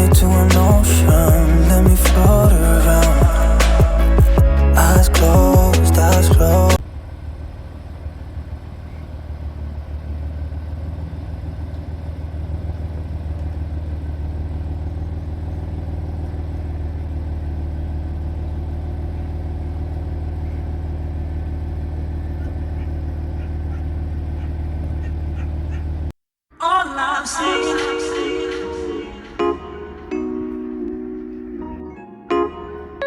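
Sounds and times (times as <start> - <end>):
music: 0.0 - 6.8, 27.4 - 33.0
car engine idling: 0.0 - 26.1.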